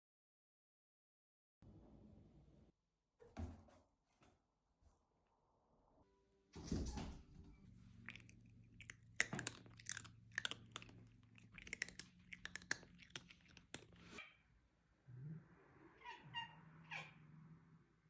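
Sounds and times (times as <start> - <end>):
cat meowing faintly: 15.8 - 17.5.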